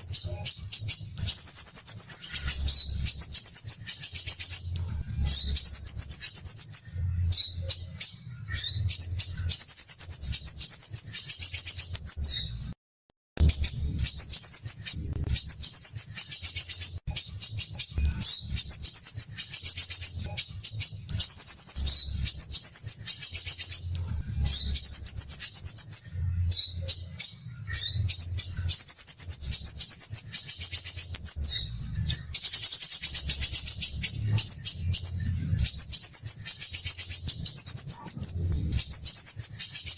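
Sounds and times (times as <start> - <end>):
bird chattering song: 0.0 - 12.6, 13.4 - 39.9.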